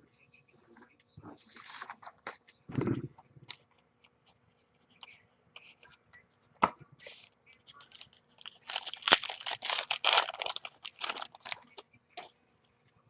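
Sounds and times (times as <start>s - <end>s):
foil pack tearing and crinkling: 7.8s - 11.7s.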